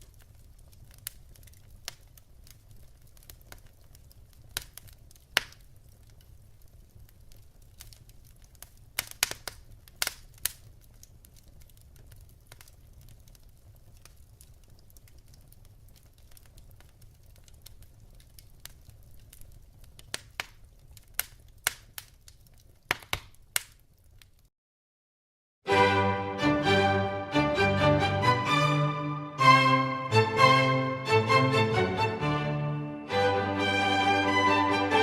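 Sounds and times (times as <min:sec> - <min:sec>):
low fire rumble: 0:00.0 - 0:24.5
wood fire crackling and popping: 0:00.0 - 0:24.5.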